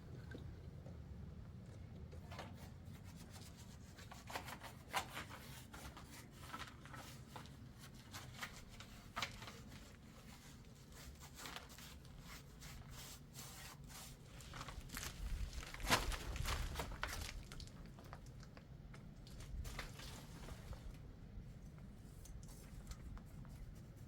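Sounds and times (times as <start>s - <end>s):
low steady hum: 0.0s - 4.6s, 5.6s - 24.0s
rustling and small clicks: 14.4s - 23.6s.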